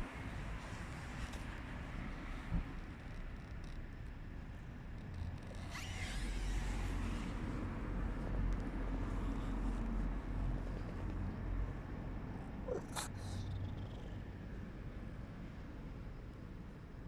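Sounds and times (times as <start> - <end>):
cat purring: 9.1 - 14.7.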